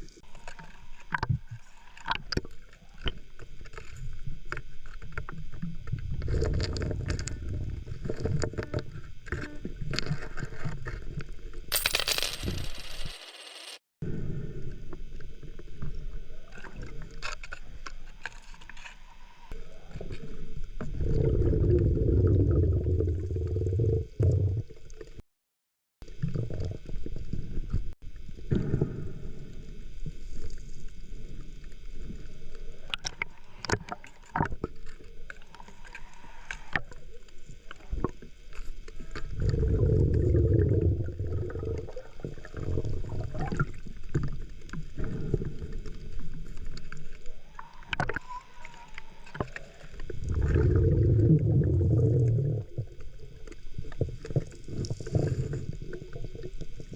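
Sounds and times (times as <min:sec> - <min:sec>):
underwater bubbling from breathing: 0:20.3 - 0:24.9, 0:39.3 - 0:46.4, 0:47.6 - 0:56.9.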